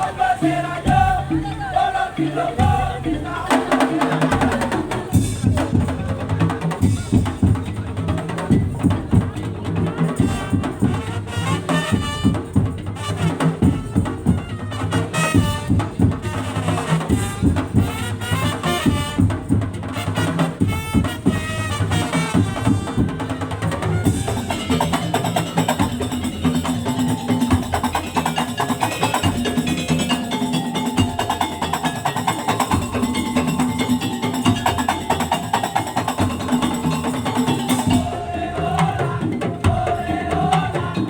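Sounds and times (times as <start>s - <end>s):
fast slit drum percussion: 0.0s - 41.0s
higher melody: 24.2s - 39.0s.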